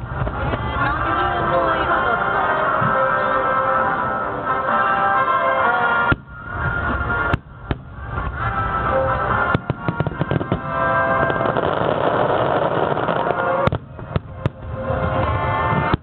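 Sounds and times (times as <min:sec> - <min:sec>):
fireworks bursting with bangs: 0:00.0 - 0:03.8, 0:04.8 - 0:16.0
fireworks crackling: 0:00.0 - 0:16.0
music playing: 0:00.0 - 0:16.0.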